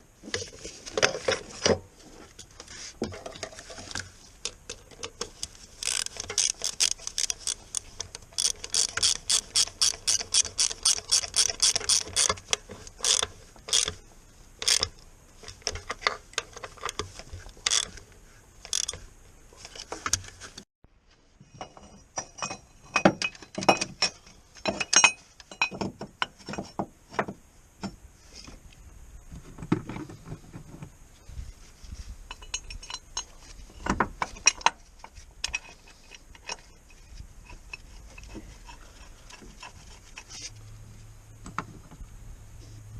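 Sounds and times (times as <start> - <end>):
hand ratchet clicking: 5.8 - 14.0, 14.6 - 14.9, 18.7 - 19.0.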